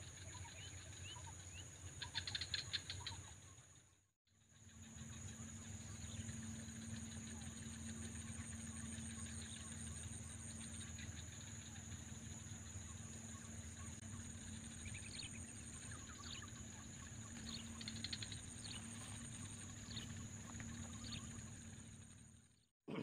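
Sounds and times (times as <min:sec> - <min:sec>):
low outdoor hum: 0:00.0 - 0:23.0
steady high-pitched drone: 0:04.5 - 0:22.4.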